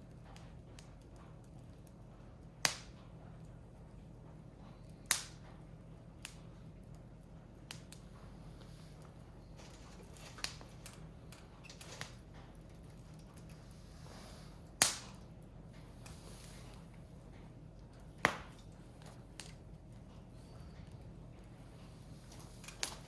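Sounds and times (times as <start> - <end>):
firewood crackling and popping: 0.0 - 23.0.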